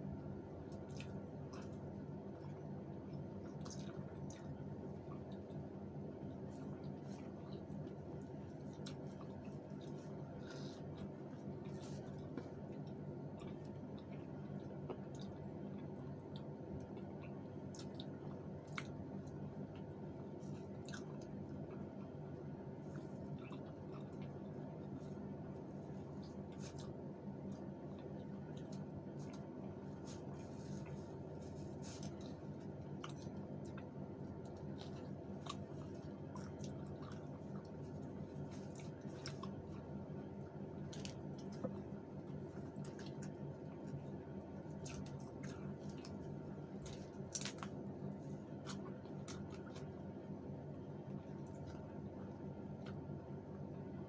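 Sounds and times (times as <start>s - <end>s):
people chewing food: 0.0s - 54.0s
steady low hum: 0.0s - 54.0s.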